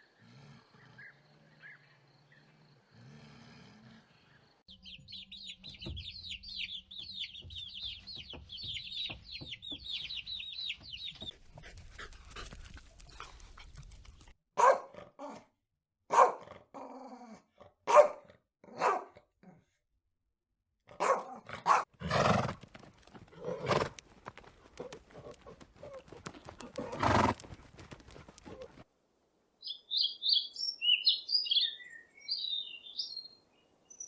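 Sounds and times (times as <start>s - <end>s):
dog barking: 14.6s - 15.4s, 16.1s - 16.6s, 17.8s - 19.3s, 20.9s - 21.9s.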